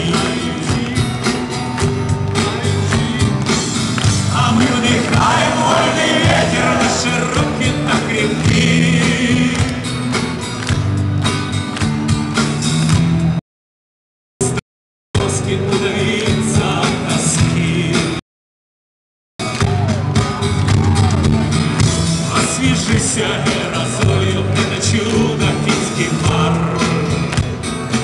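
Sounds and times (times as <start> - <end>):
instrumental rock music: 0.0 - 13.4, 19.4 - 28.0.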